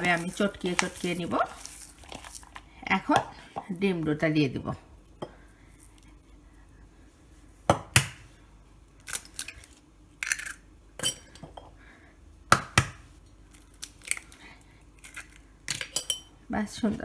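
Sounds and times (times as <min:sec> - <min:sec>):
eggs cracked against a bowl: 0:09.0 - 0:11.5, 0:12.5 - 0:14.4.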